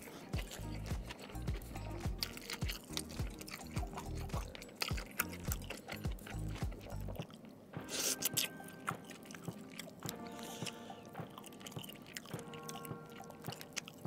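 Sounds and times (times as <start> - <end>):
chewing and mouth smacking: 0.0 - 14.0
soft background music: 0.0 - 14.0.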